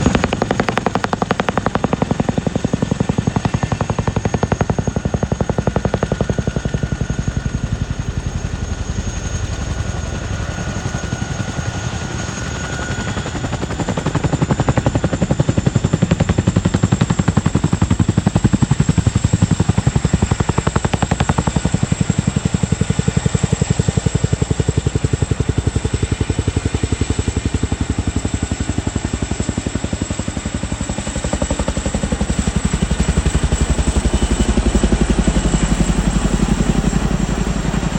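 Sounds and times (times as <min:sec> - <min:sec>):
high turbine whine: 0:00.0 - 0:23.4
helicopter rotor blades beating: 0:00.0 - 0:37.9.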